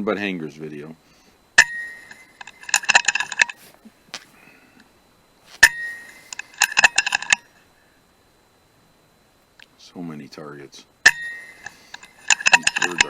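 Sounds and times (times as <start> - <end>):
short metallic ring: 1.6 - 3.7, 5.5 - 7.5, 11.0 - 13.0
rapid metallic clinks: 11.0 - 13.0.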